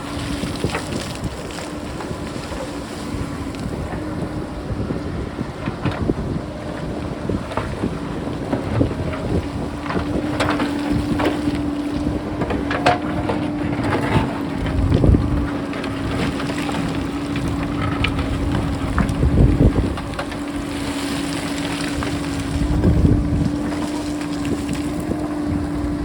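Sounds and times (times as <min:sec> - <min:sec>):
backhoe engine droning: 0:00.0 - 0:26.0
wind buffeting microphone: 0:00.0 - 0:26.0
rocks and stones clattering: 0:09.0 - 0:25.8.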